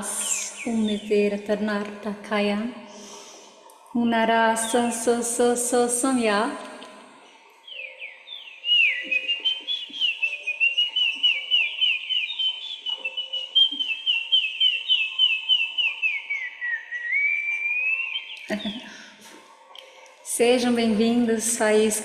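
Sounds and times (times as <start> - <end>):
high warbling whistle: 7.7 - 18.8.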